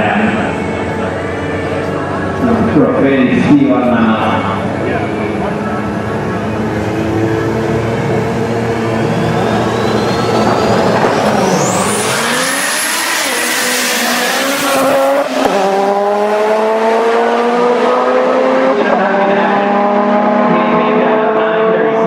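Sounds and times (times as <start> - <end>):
high whine: 0.0 - 17.6
race car engine accelerating: 0.0 - 22.0.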